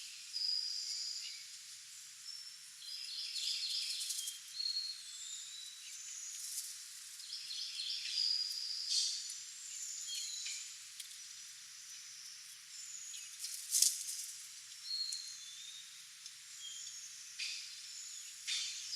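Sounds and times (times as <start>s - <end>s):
songbirds chirping and calling: 7.2s - 13.5s, 14.7s - 18.9s.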